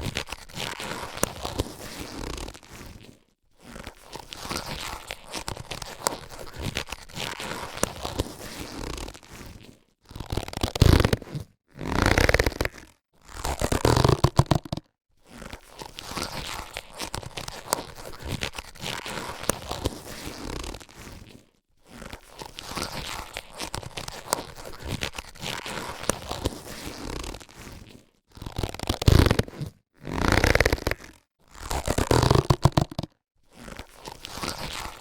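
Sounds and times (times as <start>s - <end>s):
latex gloves rustling: 0.0s - 11.4s, 13.6s - 29.7s.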